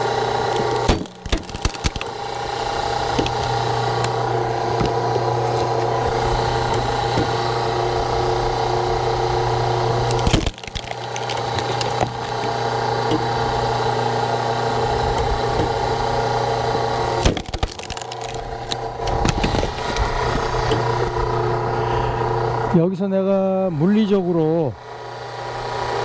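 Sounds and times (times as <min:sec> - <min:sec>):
wood cracking: 0:00.0 - 0:08.1, 0:09.9 - 0:13.8, 0:16.8 - 0:22.7
log splitter power unit humming: 0:00.0 - 0:26.0
small cracks and clicks: 0:00.4 - 0:07.3, 0:10.0 - 0:12.6, 0:16.9 - 0:21.0.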